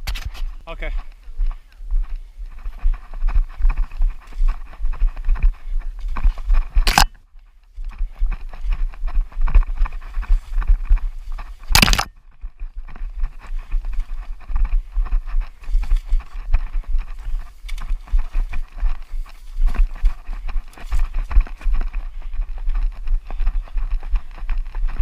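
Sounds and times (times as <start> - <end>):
runner's footsteps: 0.0 - 25.0
wind buffeting microphone: 7.8 - 25.0.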